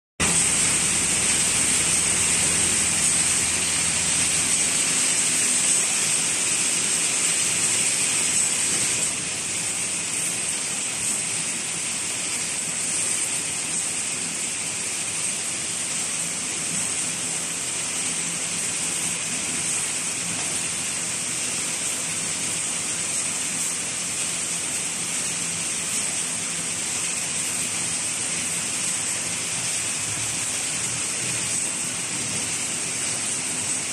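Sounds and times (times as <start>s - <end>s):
welding machine hissing: 0.2s - 33.9s.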